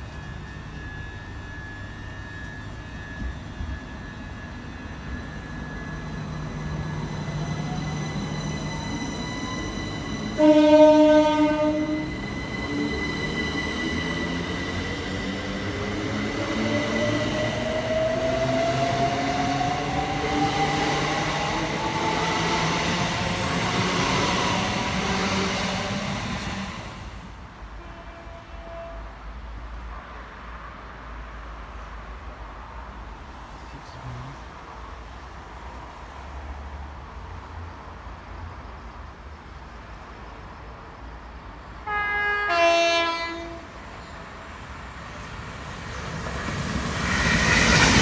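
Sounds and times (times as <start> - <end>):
train whine rising in pitch: 0.0 - 27.4, 41.8 - 48.0
train horn blast: 10.3 - 12.1, 27.8 - 29.1, 41.8 - 43.7.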